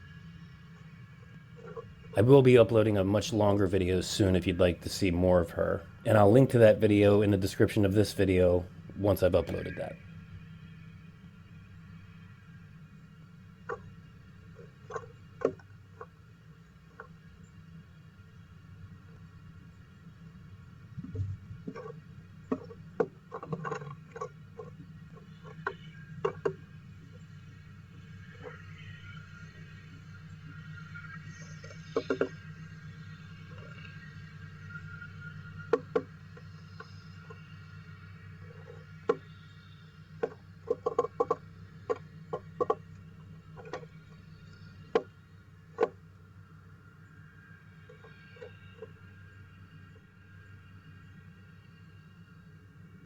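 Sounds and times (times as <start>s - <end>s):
low steady hum: 0.0s - 53.0s
woodpecker tapping and scratching: 0.8s - 9.9s, 13.6s - 17.6s, 20.0s - 46.1s, 47.8s - 49.0s
woodpecker tapping on wood: 1.6s - 1.9s, 13.6s - 13.9s, 14.5s - 16.2s, 21.0s - 27.3s, 30.5s - 32.5s, 35.6s - 37.5s, 38.4s - 39.4s, 40.2s - 45.1s, 45.7s - 46.0s.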